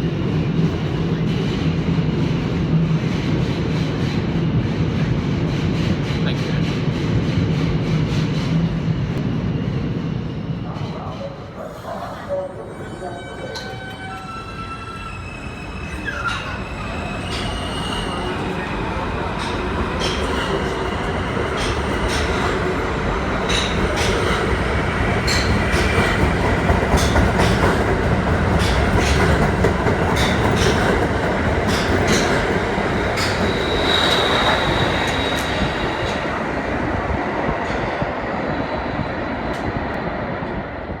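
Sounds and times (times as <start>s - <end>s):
subway wheels rumbling on rail: 0.0s - 41.0s
high-pitched wheel squeal: 12.2s - 18.6s, 33.2s - 36.0s.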